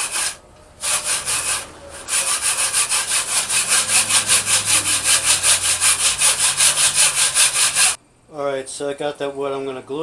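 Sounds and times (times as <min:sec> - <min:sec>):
hand saw cutting wood: 0:00.0 - 0:08.0.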